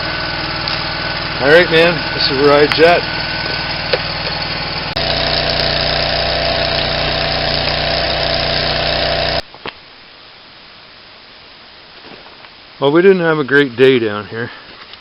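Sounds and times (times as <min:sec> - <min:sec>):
engine-driven welder running: 0:00.0 - 0:09.4.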